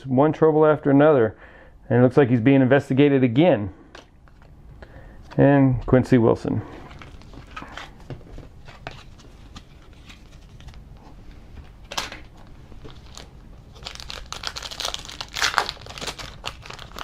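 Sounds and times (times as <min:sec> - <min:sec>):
wrapper crinkling and tearing: 0:12.8 - 0:17.0.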